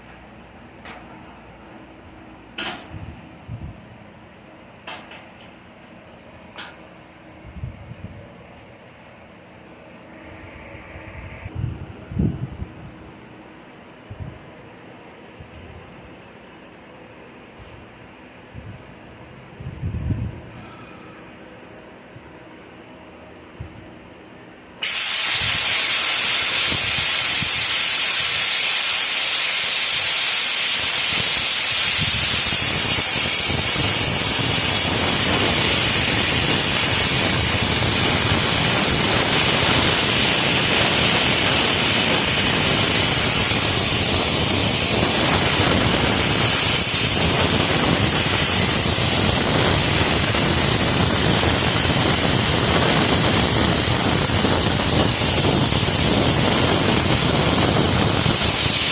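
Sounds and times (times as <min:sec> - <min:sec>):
loud hissing rush: 0:24.8 - 0:58.9.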